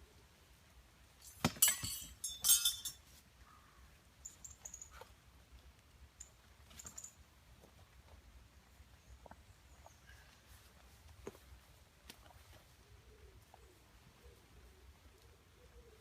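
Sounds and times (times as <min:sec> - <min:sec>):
hard objects clinking: 0:01.2 - 0:03.0.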